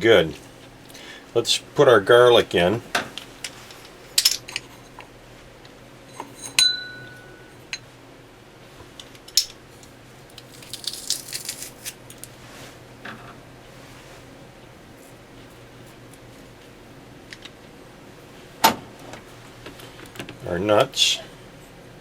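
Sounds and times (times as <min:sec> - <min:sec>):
ringing clink: 0:06.1 - 0:07.8.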